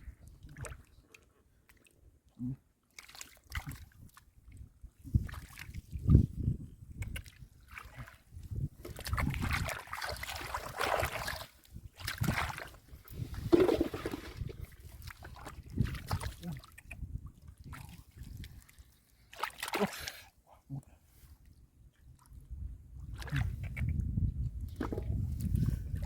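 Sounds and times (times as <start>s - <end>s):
hands splashing through mud and water: 3.0s - 4.2s, 5.1s - 6.2s, 7.0s - 17.1s, 17.7s - 20.1s, 23.1s - 23.9s.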